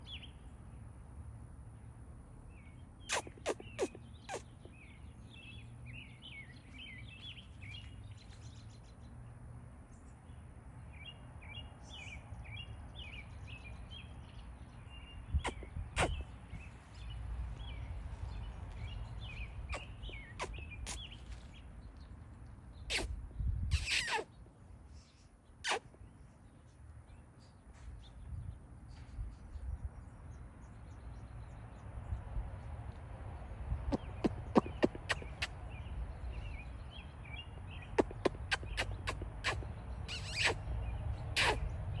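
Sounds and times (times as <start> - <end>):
small birds chirping: 2.4 - 42.0
steady low rumble: 13.7 - 23.8.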